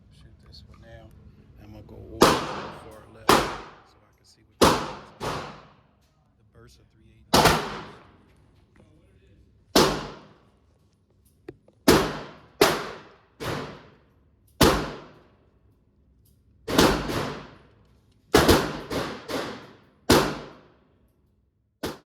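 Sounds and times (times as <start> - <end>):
pistol shots echoing: 2.2 - 3.9, 4.6 - 5.8, 7.3 - 8.2, 9.7 - 10.4, 11.8 - 14.0, 14.6 - 15.3, 16.7 - 17.6, 18.3 - 20.7.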